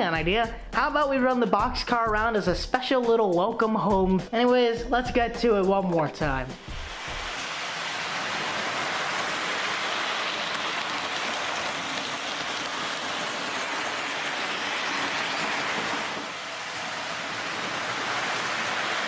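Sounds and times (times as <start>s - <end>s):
model train wheels on rails: 6.6s - 19.0s
model train motor hum: 6.8s - 19.0s.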